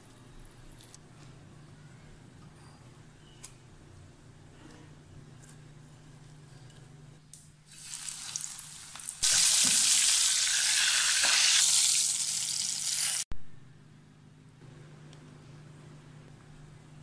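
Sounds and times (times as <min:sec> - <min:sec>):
crab frying in oil sizzling: 0:07.7 - 0:13.2.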